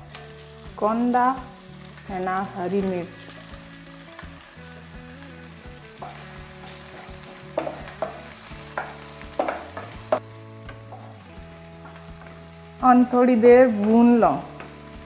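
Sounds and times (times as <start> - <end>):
vegetables sizzling in hot oil: 0.0 - 15.0
wooden spatula scraping a pan: 6.0 - 10.1.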